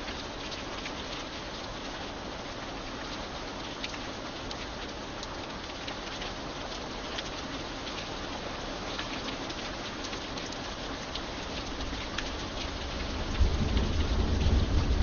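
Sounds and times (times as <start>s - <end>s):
rain drop ticks: 0.0s - 15.0s
steady rain falling: 0.0s - 15.0s
deep rumble of thunder: 12.8s - 15.0s.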